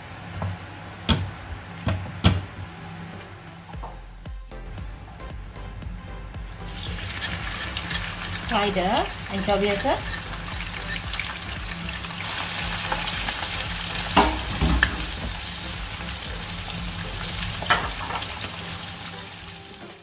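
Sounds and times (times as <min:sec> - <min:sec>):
fish sizzling in hot oil: 0:06.6 - 0:20.0.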